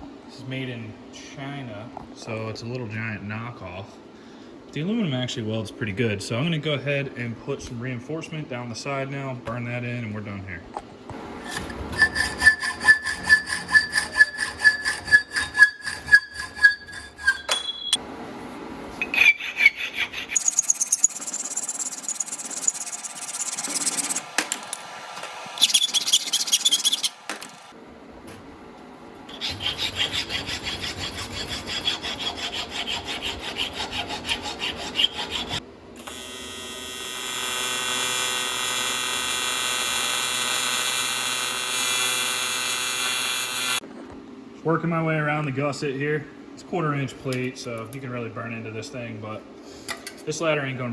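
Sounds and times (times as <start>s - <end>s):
hand tool scraping aluminium: 11.4s - 17.9s, 19.0s - 27.7s
welding buzz: 20.4s - 27.7s, 36.0s - 43.8s.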